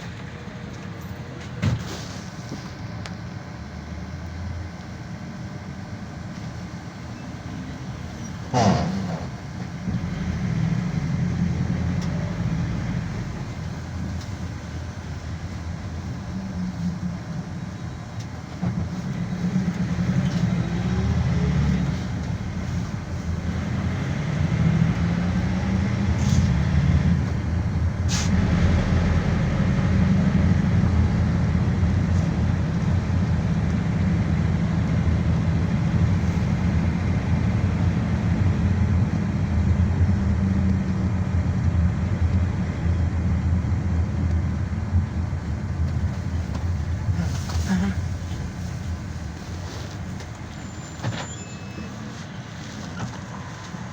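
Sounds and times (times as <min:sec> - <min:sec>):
engine and road rumble: 0:00.0 - 0:53.9.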